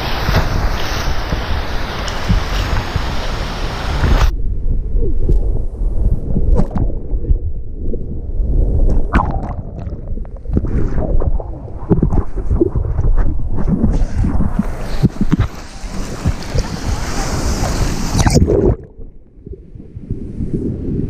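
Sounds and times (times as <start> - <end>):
muffled water sloshing: 0.0 - 4.3, 5.0 - 20.8
sharp water splashes: 0.0 - 4.3, 13.9 - 19.0
surf breaking: 0.0 - 4.3, 10.6 - 19.1
wind rushing: 0.0 - 21.0.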